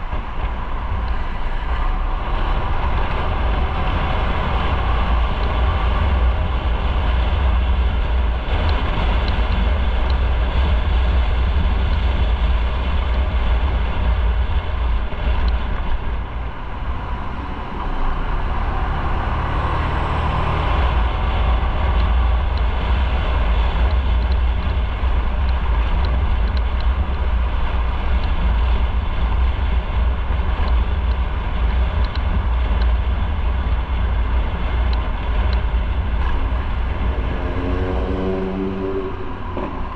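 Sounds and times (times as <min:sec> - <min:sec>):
heavy wind rumble: 0:00.0 - 0:39.9
motorcycle engine: 0:34.6 - 0:39.9.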